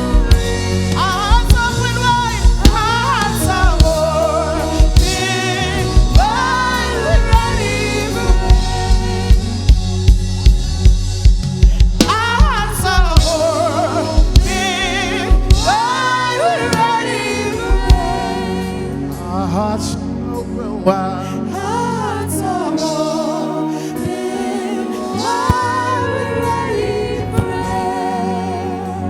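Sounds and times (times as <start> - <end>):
drum kit steady beat: 0.0 - 18.5
gospel singing voices: 0.0 - 29.0.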